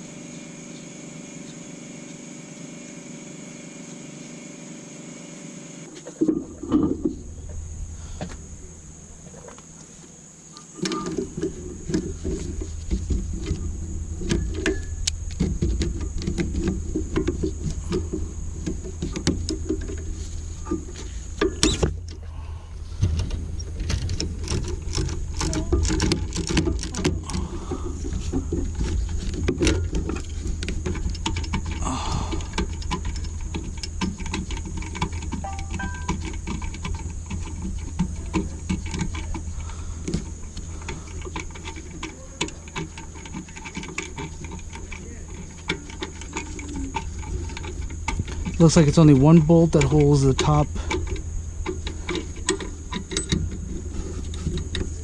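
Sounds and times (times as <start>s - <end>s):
low hum: 0.0s - 10.1s, 10.9s - 42.0s
hand tools clicking on metal: 23.8s - 55.0s.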